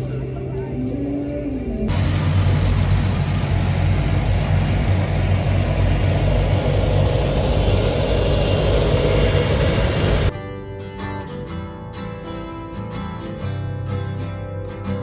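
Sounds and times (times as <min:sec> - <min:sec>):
car engine and road rumble: 0:00.0 - 0:10.4.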